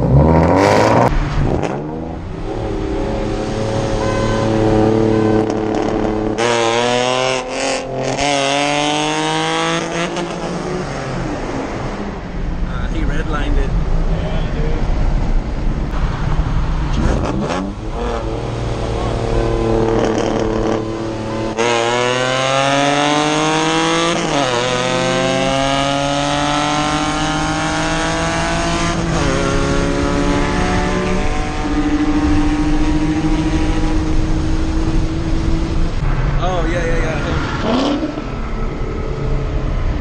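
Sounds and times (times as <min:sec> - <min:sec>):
car engine at full throttle: 0:00.0 - 0:40.0.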